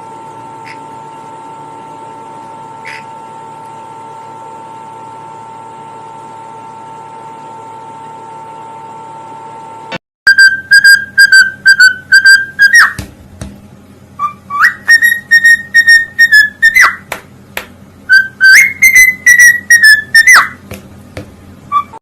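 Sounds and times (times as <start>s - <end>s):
parrot whistling: 10.3s - 13.0s, 14.2s - 17.1s, 18.1s - 20.7s, 21.7s - 22.0s.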